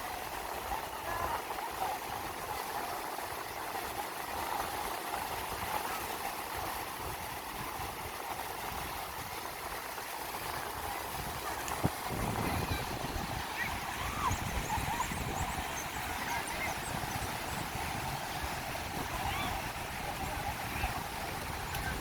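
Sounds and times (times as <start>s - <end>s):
sea at a beach: 0.0s - 22.0s
wind rumbling on microphone: 10.8s - 22.0s.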